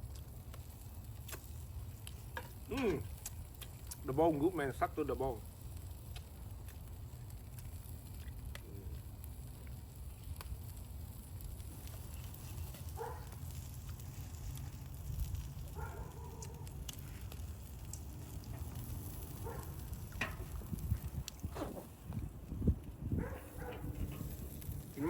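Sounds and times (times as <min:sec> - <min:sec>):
fire crackling and popping: 0:00.0 - 0:25.0
steady low rumble: 0:13.4 - 0:25.0.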